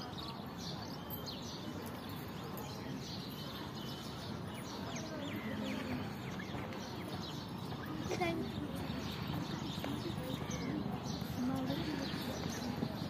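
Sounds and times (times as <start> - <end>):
low outdoor background noise: 0.0 - 13.0
small birds chirping: 0.0 - 13.0.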